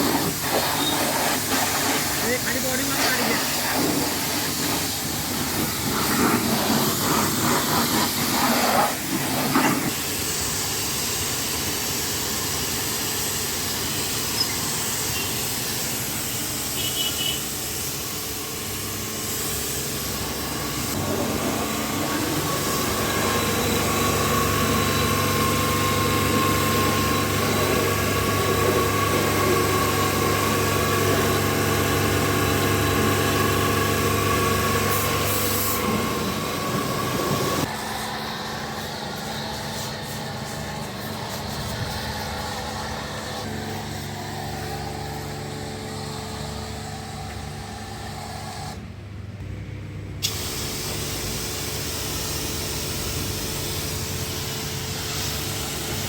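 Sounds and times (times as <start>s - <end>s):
pressure washer water jet hissing: 0.0s - 48.8s, 50.2s - 56.0s
steady motor hum: 19.8s - 48.8s.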